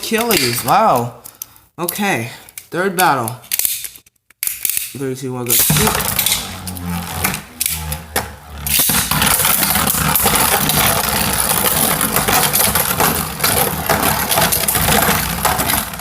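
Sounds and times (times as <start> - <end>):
spinning tops grinding whir: 5.5 - 16.0.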